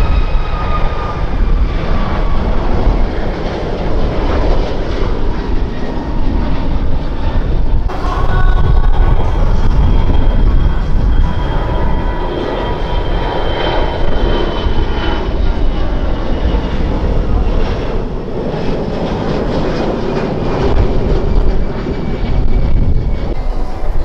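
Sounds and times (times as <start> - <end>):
jet airliner engines rumbling: 0.0 - 24.0
high engine whine: 5.5 - 24.0.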